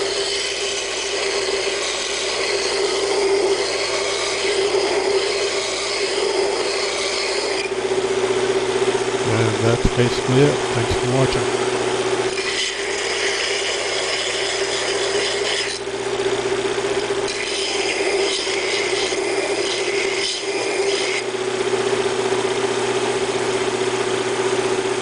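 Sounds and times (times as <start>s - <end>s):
steel grinding hiss: 0.0s - 7.7s, 12.3s - 15.9s, 17.3s - 21.2s
grinder motor hum: 0.0s - 25.0s.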